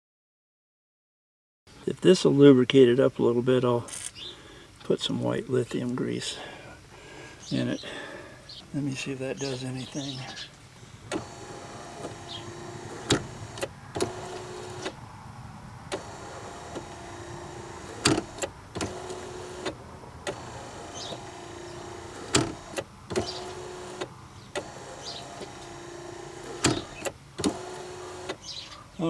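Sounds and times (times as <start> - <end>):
wiper motor whirring: 11.0 - 15.2, 15.8 - 28.6
mechanism clicks and knocks: 15.9 - 28.4.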